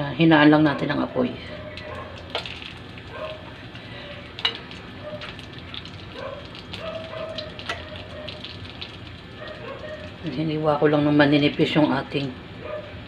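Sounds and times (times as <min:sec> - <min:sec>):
chicken sizzling in oil: 0:01.8 - 0:12.0
metal tongs knocking pan: 0:04.4 - 0:05.3.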